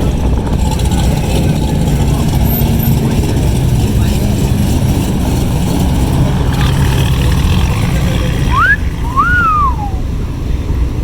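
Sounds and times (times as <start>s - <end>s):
idling car engines: 0.0s - 11.0s
loud two-part whistle: 8.5s - 10.0s.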